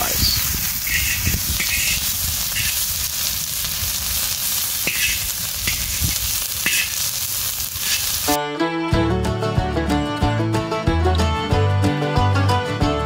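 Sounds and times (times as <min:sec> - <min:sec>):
vegetables sizzling in a wok: 0:00.0 - 0:08.4
metal spoon scraping a pan: 0:00.2 - 0:03.0, 0:04.8 - 0:08.3
music: 0:08.3 - 0:13.0.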